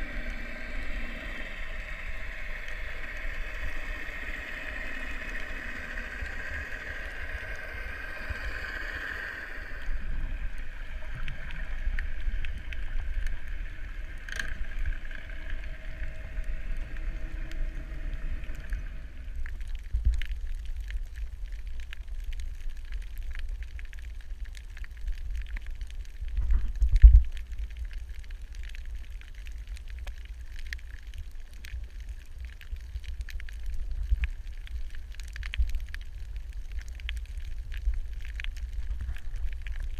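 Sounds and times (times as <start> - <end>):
boat engine hum: 0.0 - 19.6
crackle of coral reef clicks: 0.0 - 39.9
underwater low rumble: 0.0 - 39.9.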